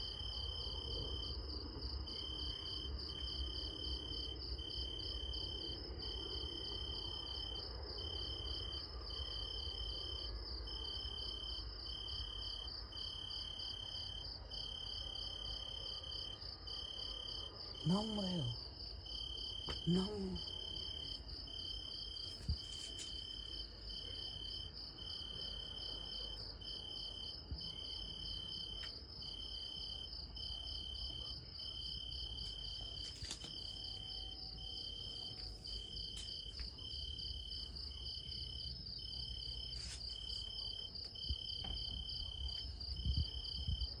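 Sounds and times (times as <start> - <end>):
cricket continuous high chirping: 0.0 - 44.0
cricket short trills: 17.7 - 23.6.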